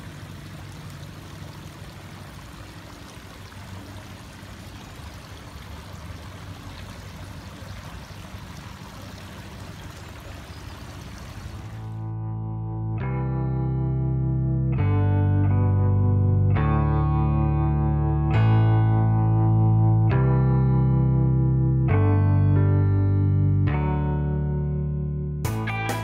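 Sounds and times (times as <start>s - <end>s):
fountain water trickling and splashing: 0.0s - 12.1s.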